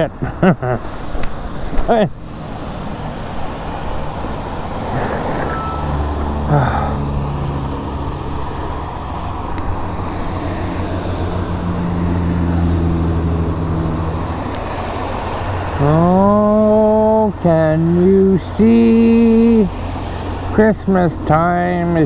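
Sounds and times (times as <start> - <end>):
road traffic passing: 0.0 - 22.0
wind rushing over microphone: 1.3 - 15.7
low hum: 4.3 - 9.4.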